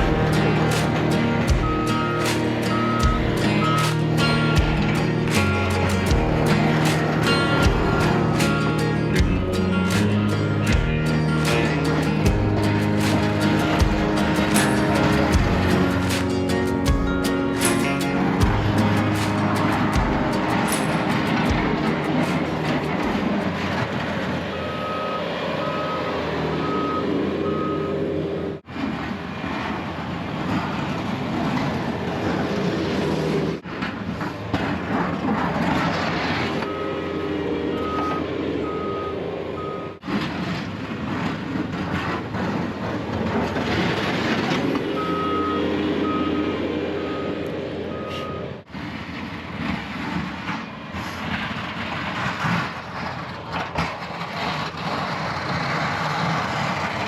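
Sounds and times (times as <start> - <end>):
vehicle engine running: 0.0 - 28.6
backup alarm beeping: 1.5 - 5.3, 24.5 - 28.1, 36.6 - 40.0, 44.9 - 48.6.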